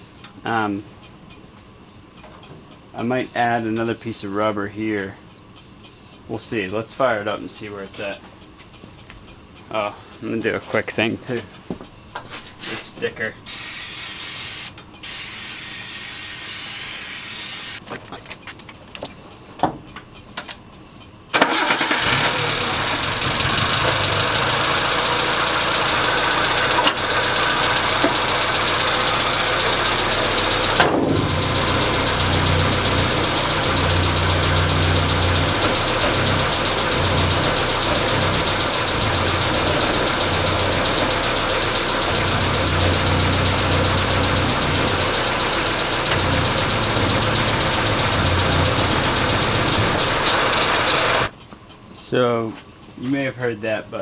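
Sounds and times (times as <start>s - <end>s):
car engine starting and running: 21.3s - 51.3s
sharp knock or rattle: 30.8s - 31.3s.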